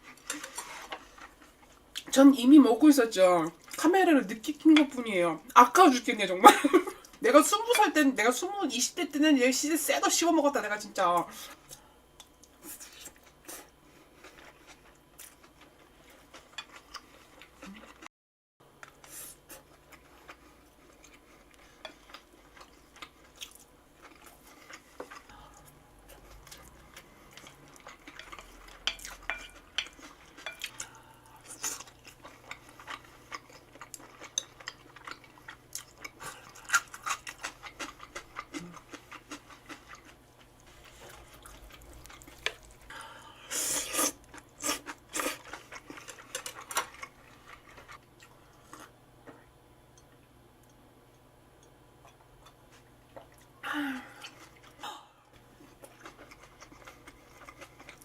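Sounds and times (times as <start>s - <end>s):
chewing: 0.0s - 2.1s, 11.5s - 18.1s, 18.8s - 42.9s, 44.0s - 48.9s, 54.2s - 58.0s.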